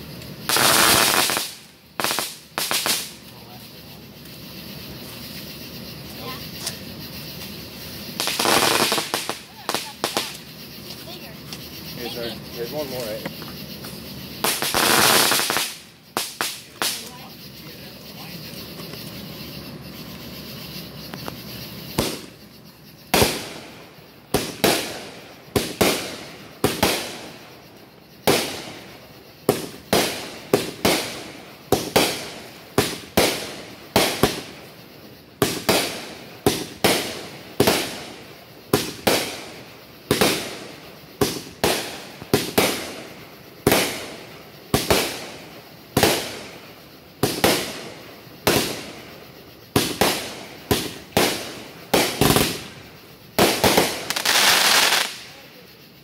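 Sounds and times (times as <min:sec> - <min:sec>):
firework shells bursting: 0:00.0 - 0:03.3, 0:08.0 - 0:10.9, 0:13.3 - 0:17.1, 0:35.4 - 0:55.3.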